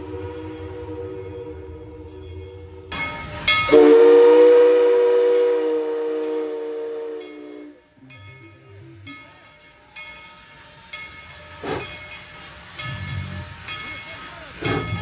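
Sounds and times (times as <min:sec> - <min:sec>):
locomotive bell ringing: 0:02.9 - 0:15.0
steam hissing: 0:02.9 - 0:15.0
loud gush of steam: 0:03.0 - 0:07.8, 0:11.5 - 0:15.0.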